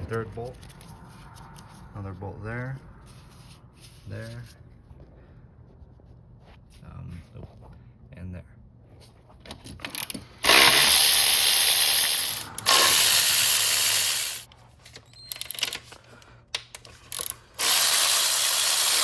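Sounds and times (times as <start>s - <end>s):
metallic clicks and clinks: 9.8s - 16.0s, 16.6s - 19.0s
ratchet wrench clicking: 9.9s - 14.5s, 16.8s - 19.0s.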